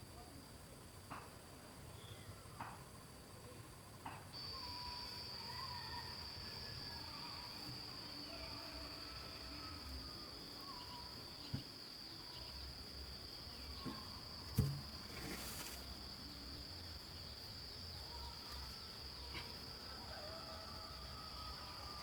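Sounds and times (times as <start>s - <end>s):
insects droning: 0.0s - 22.0s
sharp knocks: 14.6s - 14.9s.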